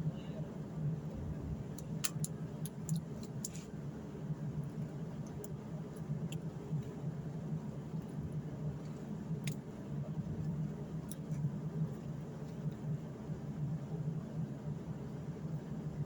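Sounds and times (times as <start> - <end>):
sharp clicks: 1.8 - 3.6.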